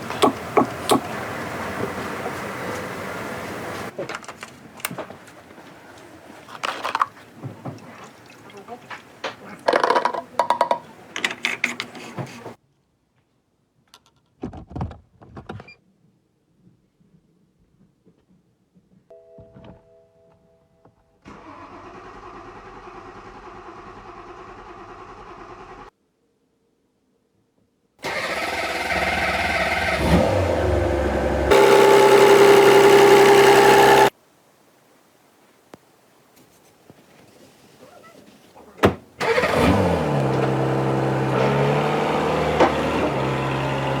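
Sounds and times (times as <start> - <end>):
car engine running: 0.0 - 3.9, 28.0 - 34.1, 39.2 - 44.0.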